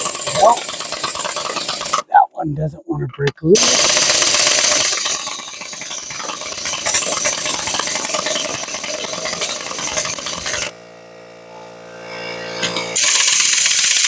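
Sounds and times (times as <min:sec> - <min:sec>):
impact wrench hammering: 0:00.0 - 0:02.1, 0:03.6 - 0:10.8, 0:12.6 - 0:14.0.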